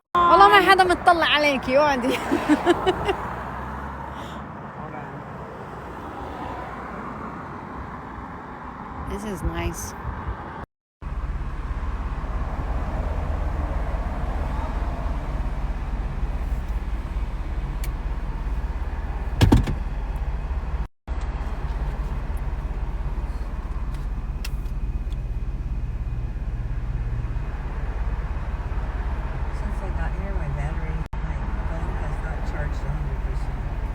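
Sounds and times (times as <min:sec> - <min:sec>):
car driving rumble: 0:00.2 - 0:33.9
loud thump: 0:19.3 - 0:19.9.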